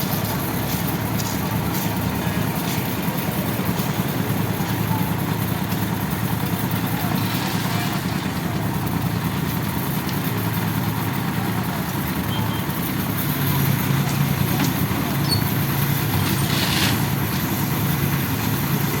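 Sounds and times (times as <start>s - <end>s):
engine droning: 0.0s - 19.0s.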